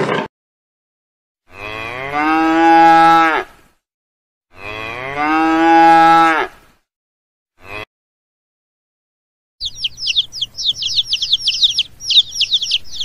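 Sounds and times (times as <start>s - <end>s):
cow mooing: 1.5s - 3.5s, 4.5s - 6.6s, 7.6s - 7.9s.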